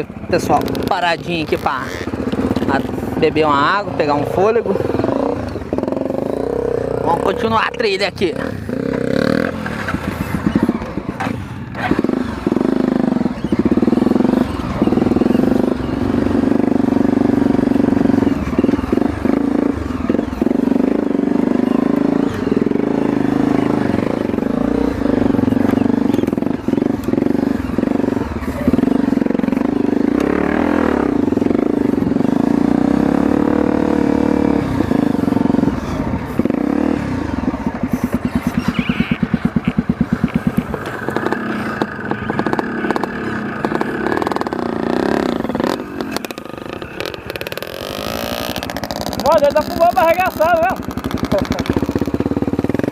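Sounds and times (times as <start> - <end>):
off-road motorcycle engine: 0.0 - 52.9.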